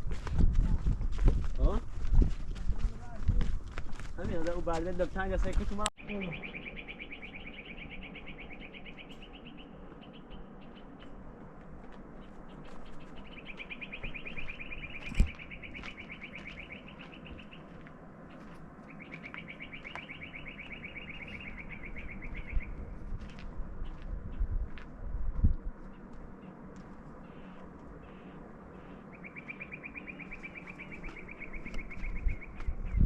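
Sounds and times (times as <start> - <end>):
bird giving high trill: 6.0 - 10.8, 27.3 - 32.6.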